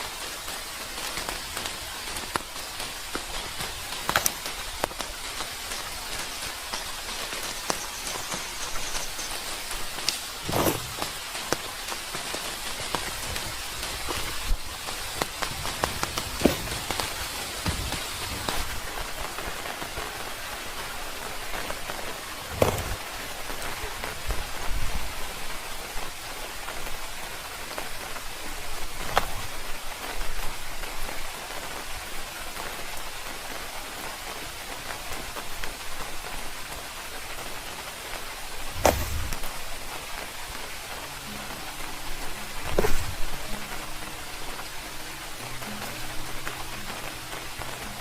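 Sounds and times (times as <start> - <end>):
rain falling on surface: 0.0 - 48.0
sharp knocks: 38.8 - 39.4.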